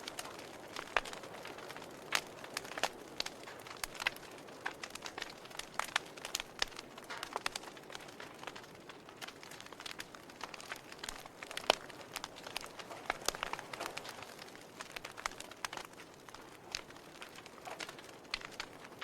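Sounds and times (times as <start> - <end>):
campfire crackling: 0.0 - 19.0
soft hiss of burning: 0.0 - 19.0.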